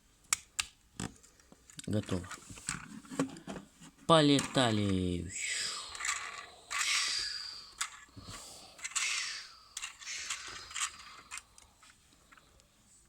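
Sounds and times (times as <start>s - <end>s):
sharp plastic clicks: 0.3s - 1.1s
plastic toy rustling: 4.3s - 12.4s.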